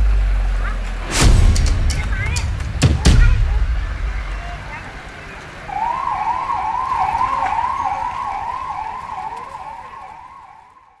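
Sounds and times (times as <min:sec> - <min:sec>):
police siren yelping: 0:05.4 - 0:11.0.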